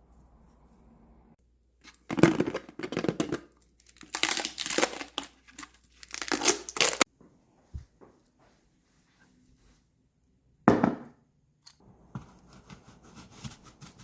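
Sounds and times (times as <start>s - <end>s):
packaging crinkling: 3.8s - 7.0s.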